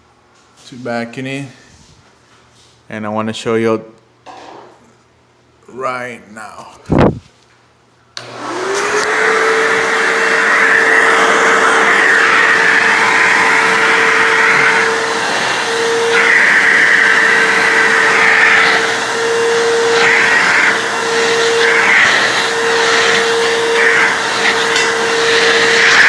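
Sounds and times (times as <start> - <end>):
vacuum cleaner motor whine: 8.2 - 26.0
vacuum suction hiss: 8.2 - 26.0.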